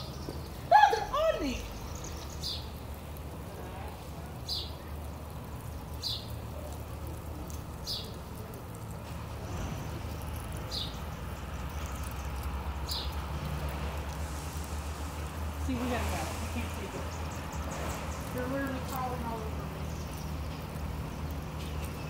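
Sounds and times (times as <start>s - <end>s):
bird chirping: 0.0s - 2.8s, 16.6s - 22.0s
low outdoor rumble: 0.0s - 22.0s.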